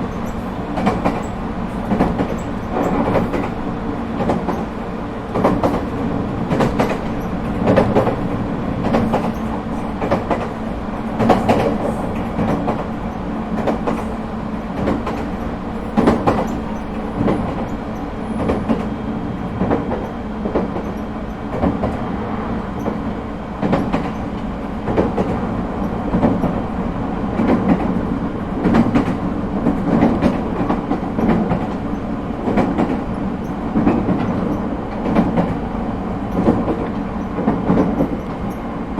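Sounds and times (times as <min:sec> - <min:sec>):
wheels clicking over rail joints: 0:00.0 - 0:19.0
train hum: 0:00.0 - 0:38.9.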